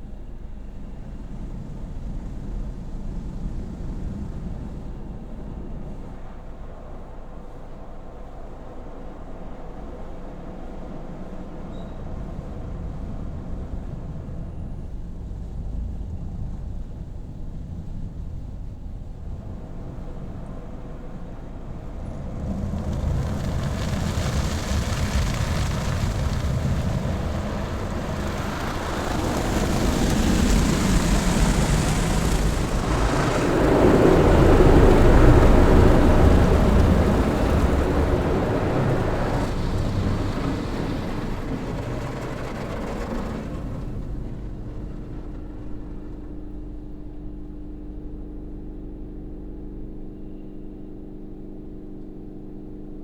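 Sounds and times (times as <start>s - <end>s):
car wash machinery rushing: 0.0s - 47.6s.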